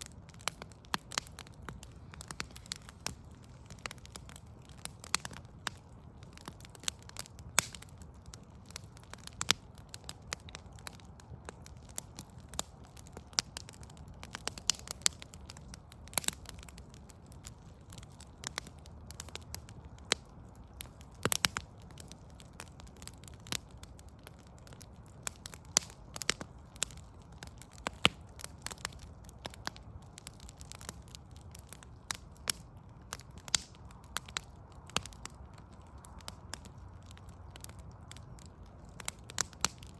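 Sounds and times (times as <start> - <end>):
wood fire crackling: 0.0 - 39.9
sharp pops and snaps: 0.3 - 8.0, 24.3 - 39.9.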